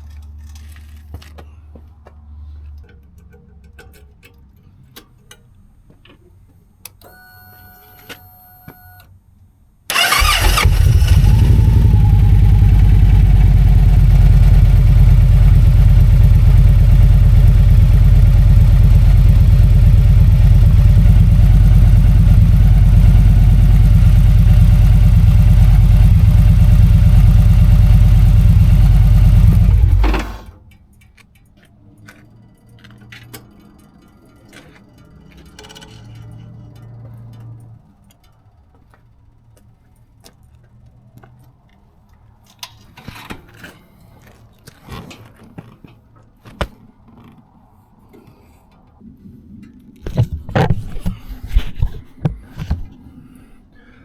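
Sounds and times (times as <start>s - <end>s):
motorcycle engine idling: 9.9s - 30.7s.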